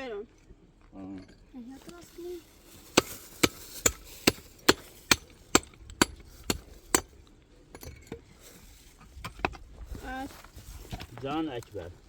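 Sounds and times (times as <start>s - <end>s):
tool striking hard surface: 2.9s - 8.2s.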